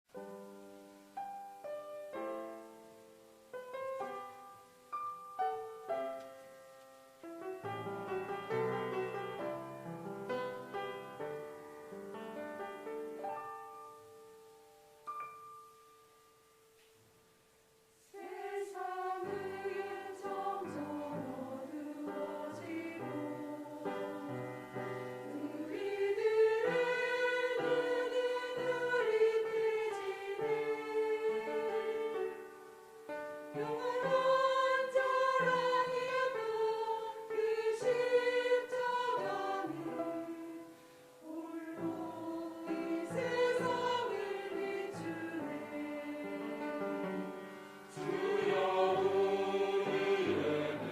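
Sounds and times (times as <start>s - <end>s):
choir singing worship song: 18.0s - 50.9s.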